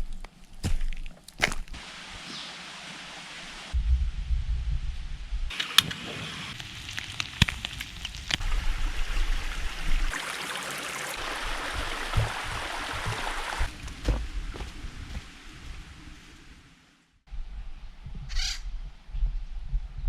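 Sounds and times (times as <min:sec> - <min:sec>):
stream water running: 0:00.1 - 0:03.8, 0:05.5 - 0:16.5.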